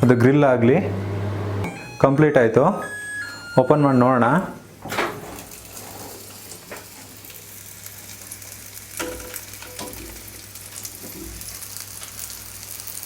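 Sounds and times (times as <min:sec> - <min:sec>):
food sizzling and crackling on grill: 0:05.4 - 0:13.0.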